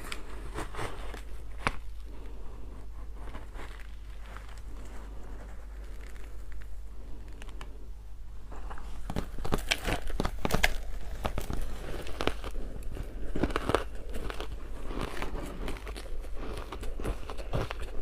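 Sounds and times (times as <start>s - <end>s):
ice being crunched: 9.0s - 18.0s.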